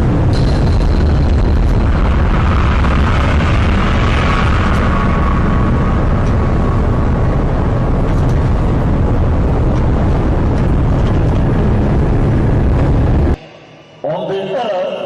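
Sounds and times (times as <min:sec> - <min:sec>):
strong wind buffeting microphone: 0:00.0 - 0:13.4.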